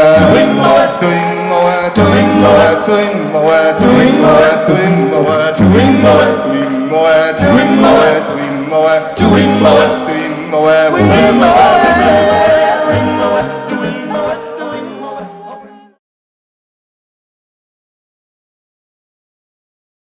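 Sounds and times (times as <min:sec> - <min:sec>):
male group singing in harmony: 0:00.0 - 0:16.0.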